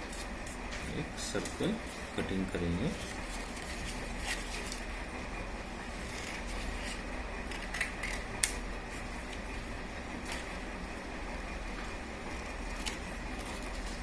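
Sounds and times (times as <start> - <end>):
steady low hum: 0.0 - 14.0
scissors snipping paper: 12.3 - 14.0.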